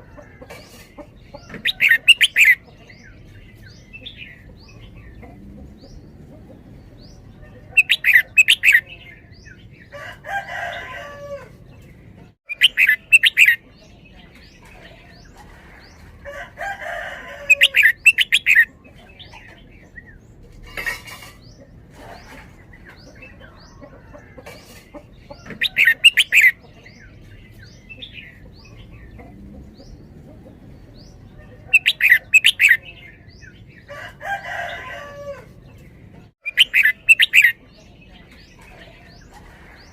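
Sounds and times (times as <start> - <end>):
bird singing bright notes: 7.7 - 9.6, 12.5 - 13.6, 36.4 - 37.6.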